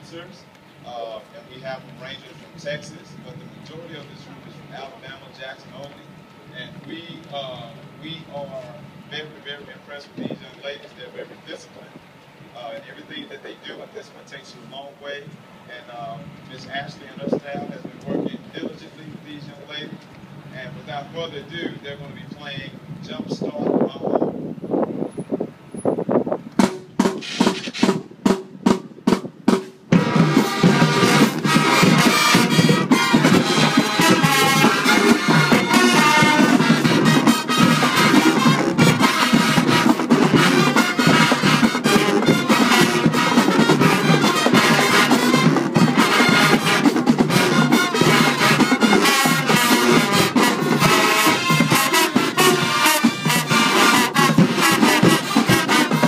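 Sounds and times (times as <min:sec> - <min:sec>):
marching band with brass: 0:00.0 - 0:23.8, 0:24.5 - 0:56.0
sharp drum hits: 0:26.6 - 0:56.0.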